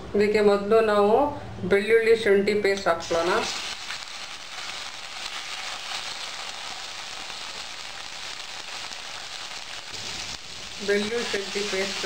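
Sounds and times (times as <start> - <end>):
paste sizzling in hot oil: 3.0 - 12.0.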